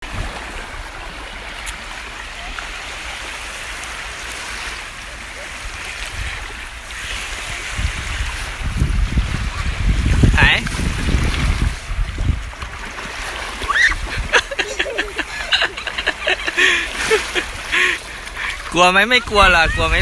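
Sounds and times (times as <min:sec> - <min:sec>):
sea waves rushing: 0:00.0 - 0:20.0
wind buffeting microphone: 0:05.3 - 0:20.0.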